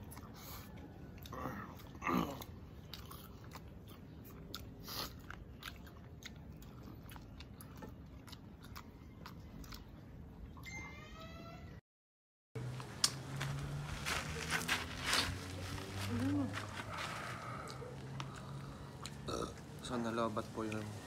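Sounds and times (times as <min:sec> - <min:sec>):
close-up chewing and crunching: 0:00.0 - 0:10.4, 0:12.6 - 0:21.0.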